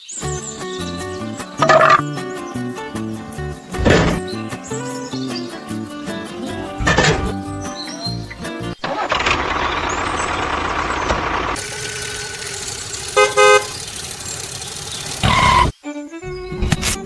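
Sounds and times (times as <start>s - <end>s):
vehicle engine running: 9.1s - 15.7s
double horn toot: 11.6s - 13.9s.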